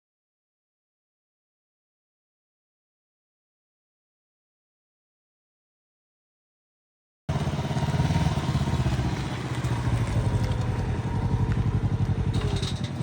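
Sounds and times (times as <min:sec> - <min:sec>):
motorcycle engine running: 0:07.3 - 0:13.0.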